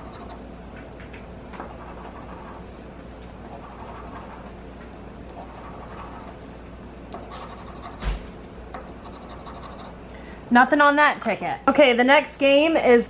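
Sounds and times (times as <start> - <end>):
scratching lottery ticket: 1.6 - 2.7, 3.5 - 4.6, 5.3 - 6.4, 7.2 - 8.0, 9.0 - 10.0.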